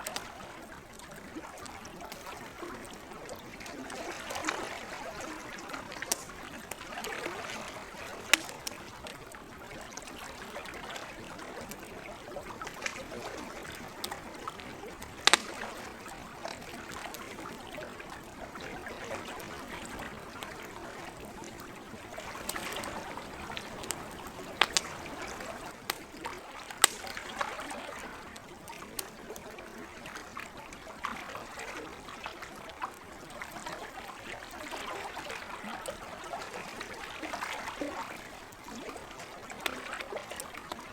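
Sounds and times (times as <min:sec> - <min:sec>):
campfire pops: 0:00.0 - 0:29.5
campfire crackling: 0:00.0 - 0:40.9
lake water lapping at shore: 0:00.0 - 0:40.9.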